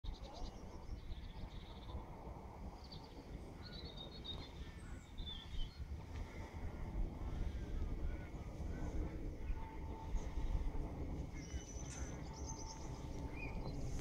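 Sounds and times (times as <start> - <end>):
low rumbling background noise: 0.1 - 14.0
small birds chirping: 0.1 - 14.0.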